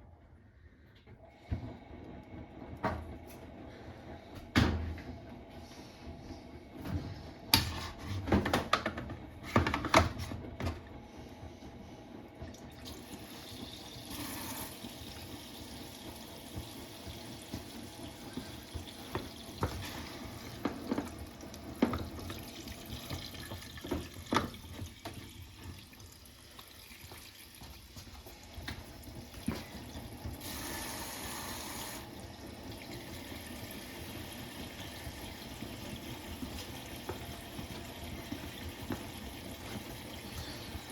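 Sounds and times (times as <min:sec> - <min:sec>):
washing machine water sloshing: 0:12.3 - 0:40.9.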